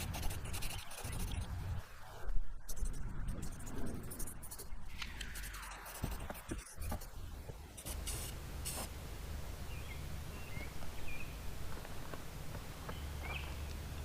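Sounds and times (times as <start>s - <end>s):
spray paint can hissing: 7.8s - 8.9s.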